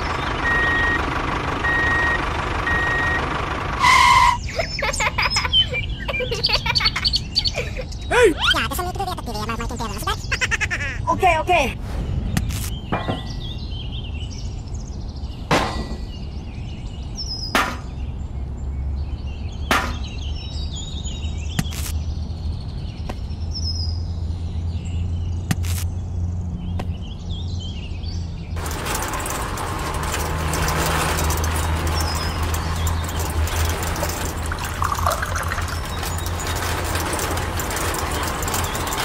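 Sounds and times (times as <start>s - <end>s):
small birds chirping: 4.3s - 39.0s
liquid trickling from toy machine: 28.6s - 39.0s.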